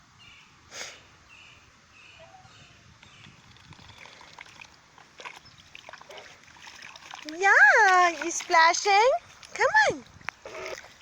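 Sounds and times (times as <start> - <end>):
water trickling: 3.2 - 11.0
goose splashing in water: 3.4 - 9.6.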